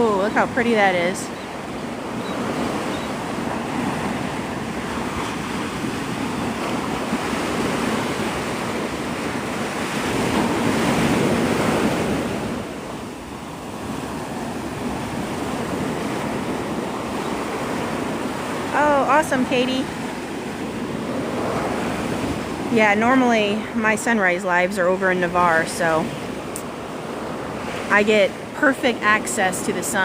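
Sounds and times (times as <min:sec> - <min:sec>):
wind on microphone: 0:00.0 - 0:24.0
surf breaking on beach: 0:00.0 - 0:30.0.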